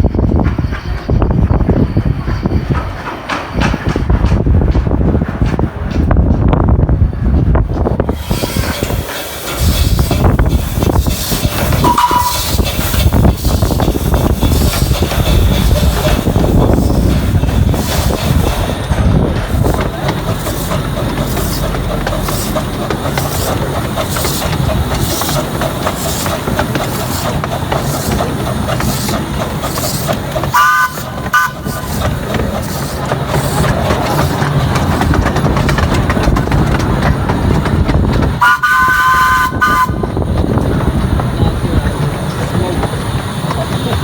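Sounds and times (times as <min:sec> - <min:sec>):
train wheels clattering on rails: 0:00.0 - 0:44.0
train warning horn: 0:11.8 - 0:12.5, 0:30.5 - 0:31.8, 0:38.4 - 0:40.1.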